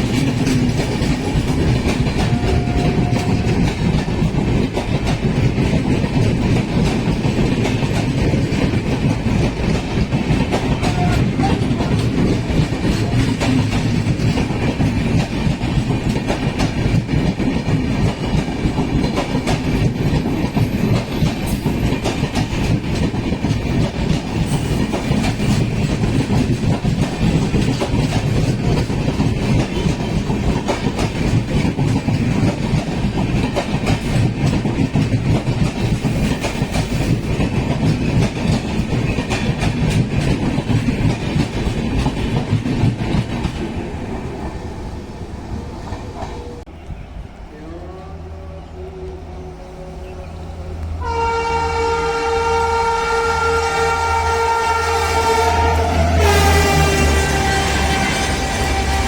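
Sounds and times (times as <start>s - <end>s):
train wheels clattering: 0.0s - 46.8s.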